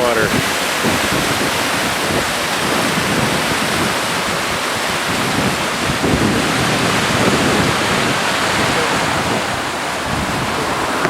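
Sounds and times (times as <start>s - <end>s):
river rushing in flood: 0.0s - 11.0s
wind buffeting microphone: 0.0s - 11.0s.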